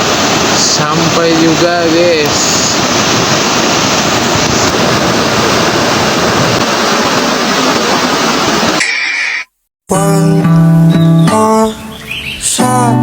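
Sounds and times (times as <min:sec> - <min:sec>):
flowing water roar: 0:00.0 - 0:09.5.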